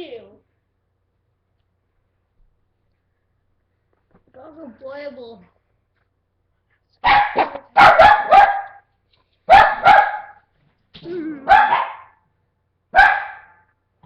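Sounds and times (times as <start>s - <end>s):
small dog barking: 7.0s - 8.9s, 9.5s - 10.5s, 11.4s - 12.2s, 12.9s - 13.7s.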